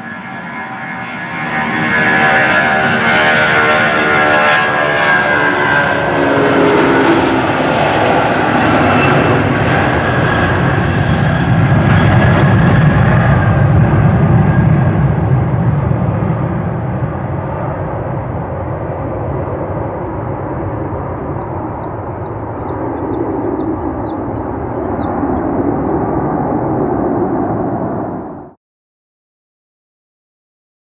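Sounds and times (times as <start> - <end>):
engine whine: 0.0 - 28.5
jet engines roaring: 0.0 - 28.6
high chirping calls: 20.8 - 26.8.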